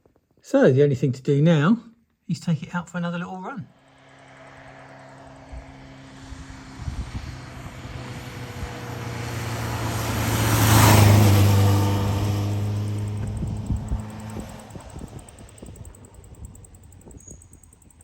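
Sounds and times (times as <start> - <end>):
motorcycle riding past: 3.7 - 18.0.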